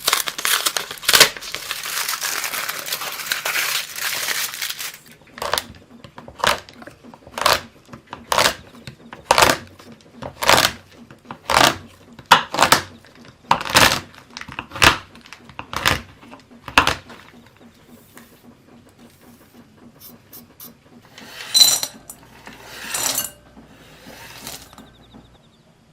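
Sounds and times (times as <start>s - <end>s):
knife chopping chocolate on board: 10.3s - 12.9s.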